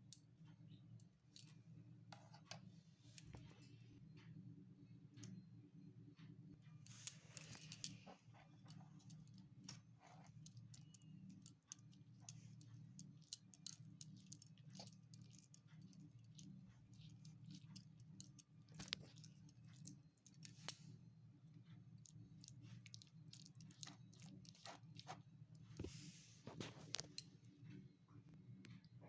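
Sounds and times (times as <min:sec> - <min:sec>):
low steady hum: 0:00.0 - 0:29.0
small utensils clicking: 0:06.8 - 0:20.8.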